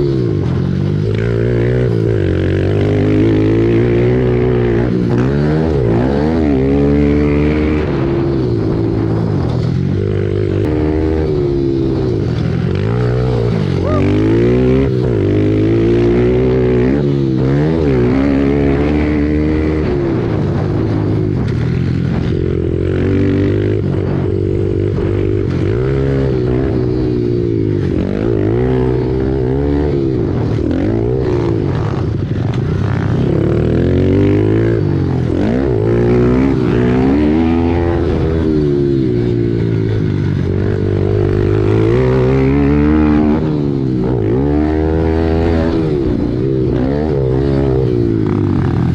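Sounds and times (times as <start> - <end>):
pit bike engine racing: 0.0 - 48.9.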